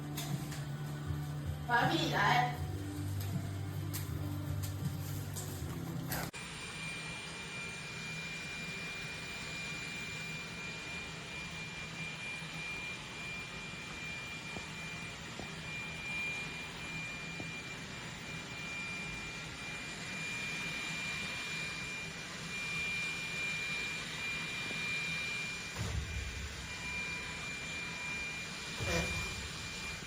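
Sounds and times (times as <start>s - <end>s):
robot vacuum whirring: 6.4s - 30.0s.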